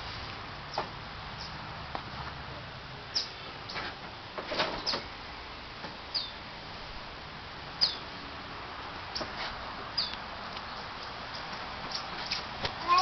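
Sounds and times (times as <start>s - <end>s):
bird chirping: 3.1s - 3.4s, 6.1s - 6.4s, 7.8s - 8.1s, 10.0s - 11.1s.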